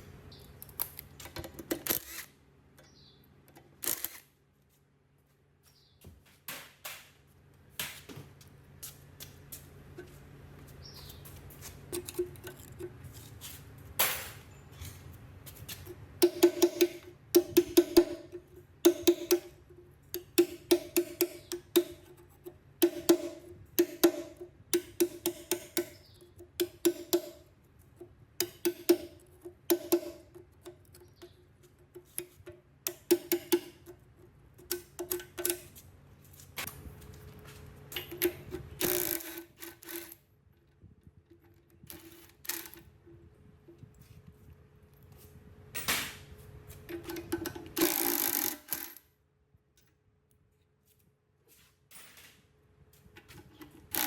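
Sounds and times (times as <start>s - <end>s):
ringing taps on a workpiece: 15.8s - 34.0s, 34.6s - 35.7s.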